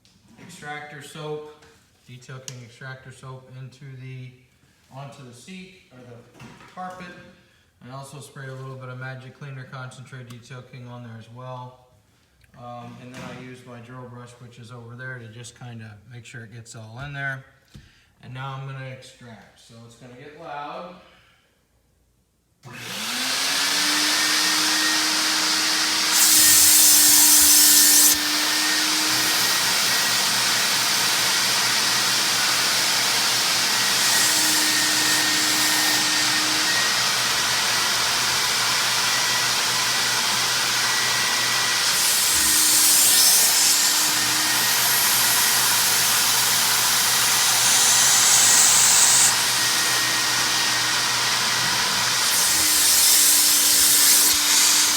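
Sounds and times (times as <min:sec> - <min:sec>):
carpet extractor motor whining: 0:22.7 - 0:54.9.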